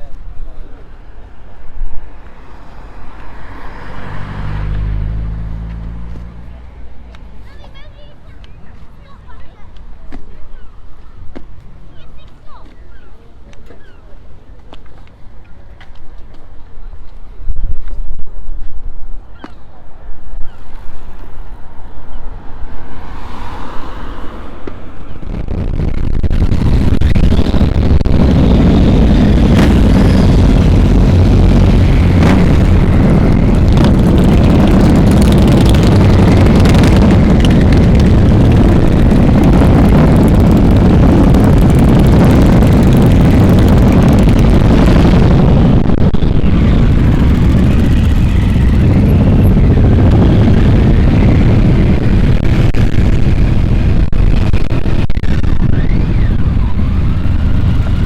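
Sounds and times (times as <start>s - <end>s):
wind rumble on microphone: 0.0s - 58.0s
motorcycle riding: 2.1s - 8.1s, 22.1s - 58.0s.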